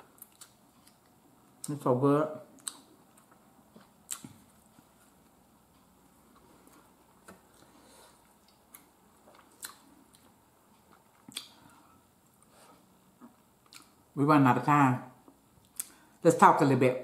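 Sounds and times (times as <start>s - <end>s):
chewing food: 0.0s - 1.8s, 2.5s - 12.5s, 13.2s - 14.0s.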